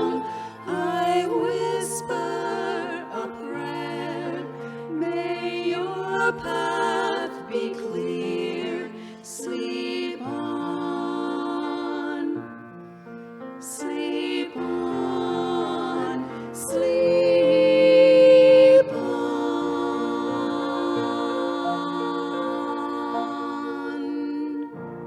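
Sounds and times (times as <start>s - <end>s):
flute: 0.0s - 5.3s
women singing in harmony: 0.0s - 12.9s, 13.6s - 25.0s
piano: 0.0s - 25.0s.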